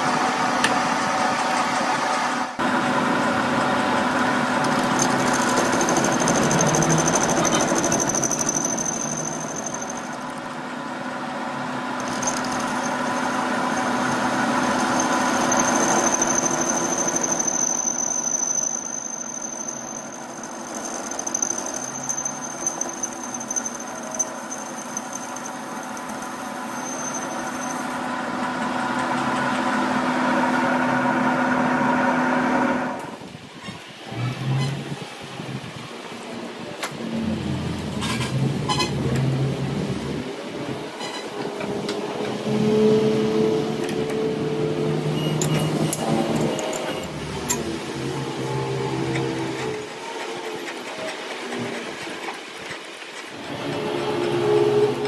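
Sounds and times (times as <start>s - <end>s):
machine running with steady tones: 0.0s - 33.2s
high-pitched whine: 2.6s - 28.6s.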